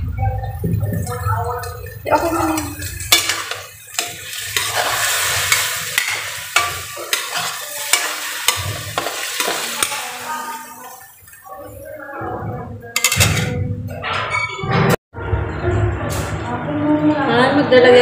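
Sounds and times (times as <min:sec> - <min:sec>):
chicken sizzling in a wok: 0:02.0 - 0:12.0
metal spatula scraping pan: 0:02.2 - 0:10.8.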